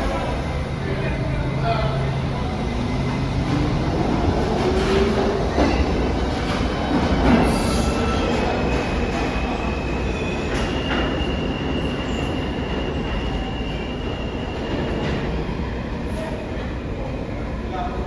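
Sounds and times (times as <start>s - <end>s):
subway cars rumbling: 0.0s - 18.0s
subway train wheels squealing: 0.0s - 18.0s.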